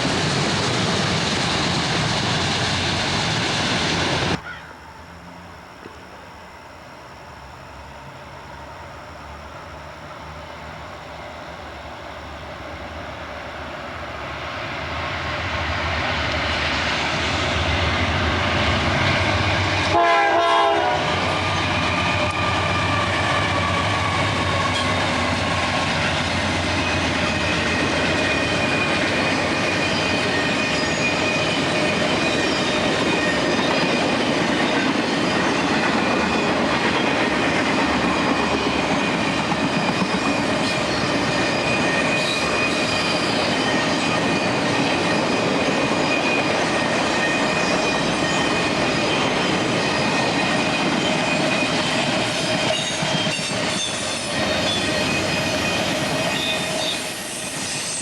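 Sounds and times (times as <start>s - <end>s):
train passing: 0.0s - 58.0s
train horn: 19.8s - 24.9s
high wheel squeal: 21.1s - 58.0s.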